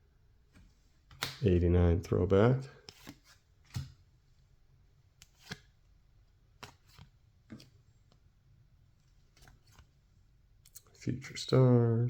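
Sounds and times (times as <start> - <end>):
cards swishing and tapping: 2.8 - 4.0, 5.2 - 5.8, 6.6 - 8.2.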